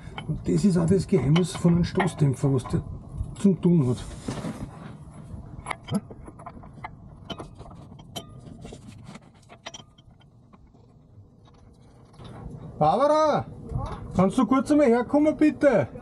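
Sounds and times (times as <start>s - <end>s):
metallic tool clicks and knocks: 1.2s - 2.8s.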